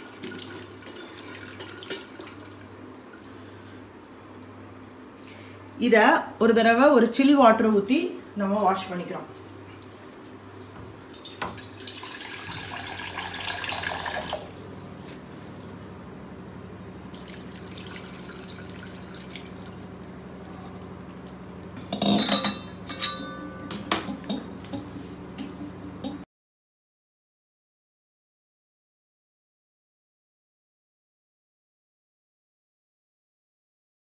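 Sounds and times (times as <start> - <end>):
water pouring into colander: 0.0 - 3.2, 11.1 - 15.0, 17.1 - 21.7
steady low hum: 12.7 - 26.2
metal utensils clinking: 21.2 - 26.2.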